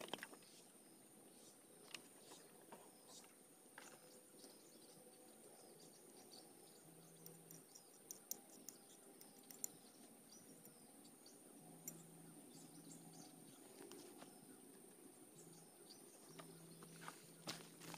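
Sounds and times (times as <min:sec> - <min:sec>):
faint ticks: 0:07.2 - 0:09.8.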